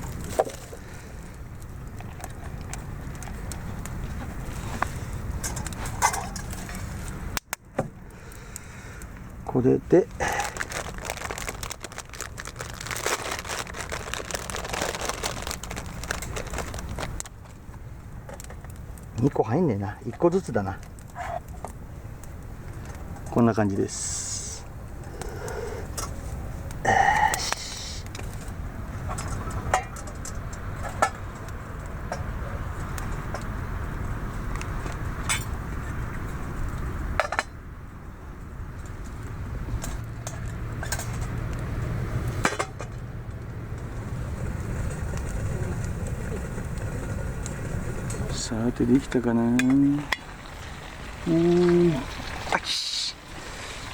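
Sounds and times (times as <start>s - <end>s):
low background rush: 0.0s - 53.3s
plastic packaging crinkling: 10.1s - 17.4s.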